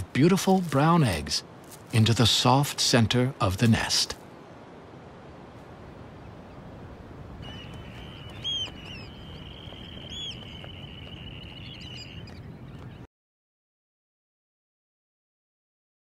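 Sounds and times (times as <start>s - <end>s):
low outdoor ambient noise: 0.0s - 13.0s
bird calls: 6.0s - 13.1s.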